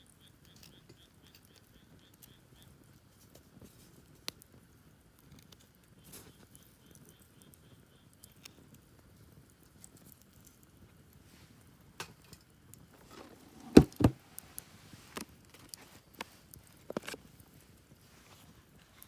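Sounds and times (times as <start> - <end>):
sharp knocks: 13.6 - 14.2.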